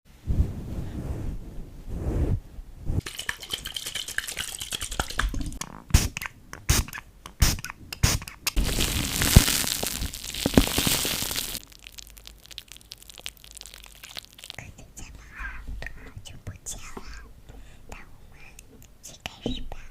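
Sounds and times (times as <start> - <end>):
foam crackling as squeezed by hand: 8.6 - 14.7.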